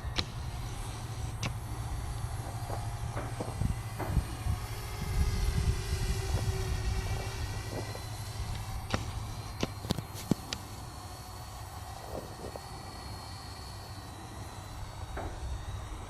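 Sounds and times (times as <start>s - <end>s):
sharp clicks: 0.0s - 4.2s
wind rumble on microphone: 0.0s - 11.0s
drone propellers whining: 0.0s - 16.0s.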